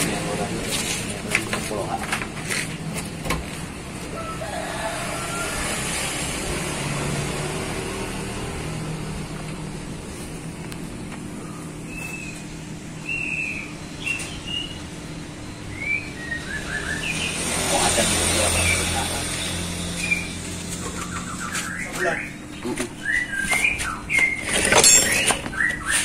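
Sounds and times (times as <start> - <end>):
steady low hum: 8.3 - 21.3
small birds chirping: 10.2 - 26.0.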